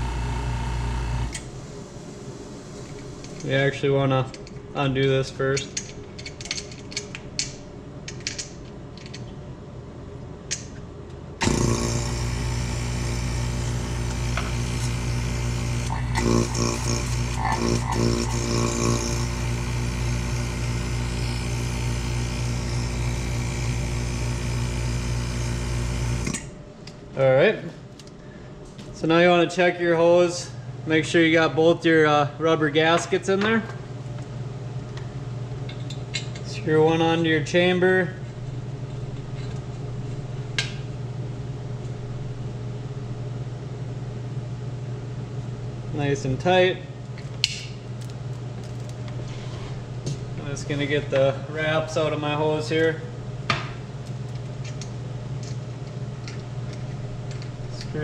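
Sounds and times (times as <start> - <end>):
vacuum pump humming: 0.0 - 3.6, 11.4 - 26.8
steady low hum: 0.0 - 58.0.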